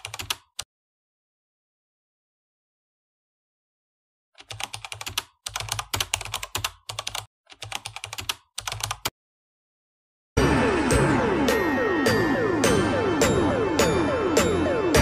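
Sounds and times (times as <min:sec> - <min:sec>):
music: 0:10.4 - 0:15.0.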